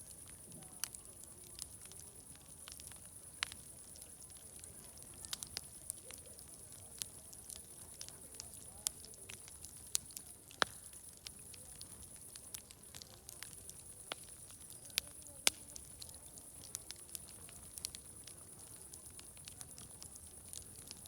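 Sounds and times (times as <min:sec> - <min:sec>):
faint murmur of distant voices: 0:00.0 - 0:21.0
wood fire crackling and popping: 0:00.0 - 0:21.0.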